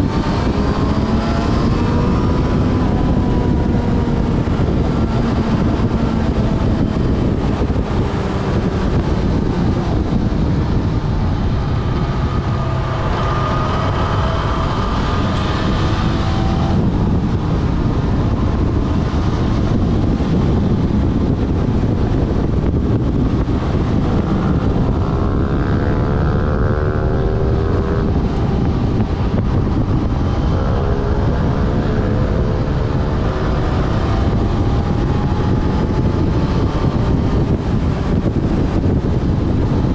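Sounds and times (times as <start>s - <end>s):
motorcycle engine accelerating: 0.0s - 39.9s
wind rush on microphone: 0.0s - 39.9s.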